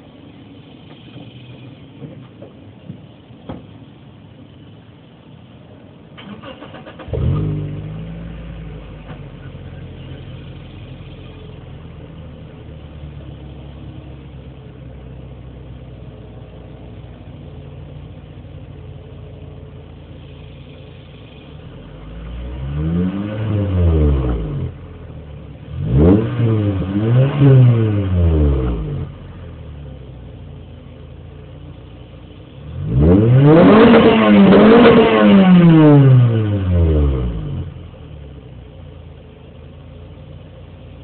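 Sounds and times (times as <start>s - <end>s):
car engine idling: 0.0s - 41.0s
car engine starting: 0.0s - 41.0s
car engine revving: 6.2s - 38.8s.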